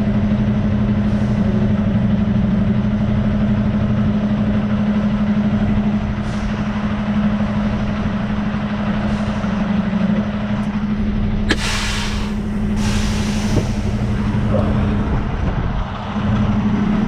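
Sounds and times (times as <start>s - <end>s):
diesel truck engine running: 0.0s - 17.0s
air brake click: 11.5s - 14.3s
air brake hiss: 11.5s - 14.3s.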